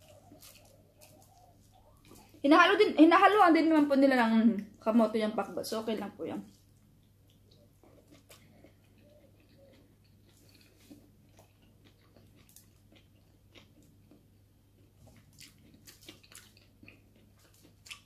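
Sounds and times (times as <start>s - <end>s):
chewing and mouth clicks: 0.0s - 2.4s, 6.5s - 18.0s.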